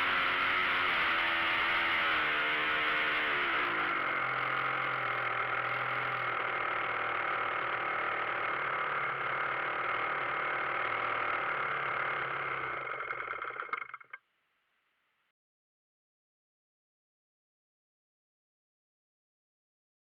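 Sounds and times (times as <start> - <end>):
engine sputtering: 0.0 - 14.2
model airplane engine running: 0.0 - 14.2.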